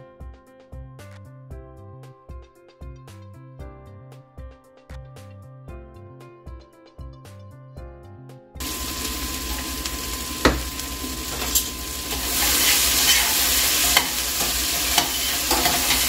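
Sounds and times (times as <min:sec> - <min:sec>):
background music: 0:00.0 - 0:09.4
food sizzling in a pot: 0:08.6 - 0:16.0.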